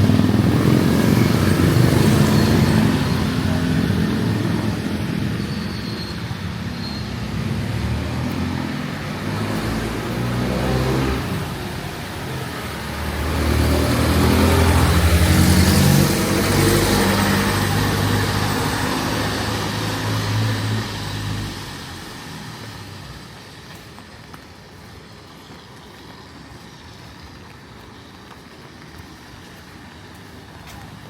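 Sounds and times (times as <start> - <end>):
vehicle driving past: 0.0 - 23.1
street background: 0.0 - 31.0.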